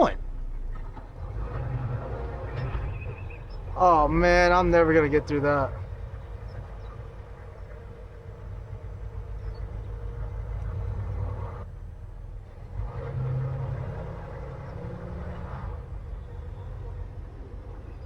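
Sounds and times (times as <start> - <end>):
diesel engine rumbling: 0.0 - 18.0.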